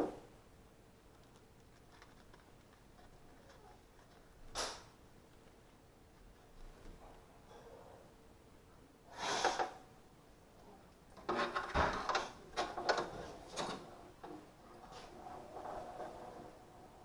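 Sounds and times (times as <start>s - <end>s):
scrape: 9.1s - 9.8s, 14.8s - 16.9s
knocks and clatters: 11.2s - 16.4s.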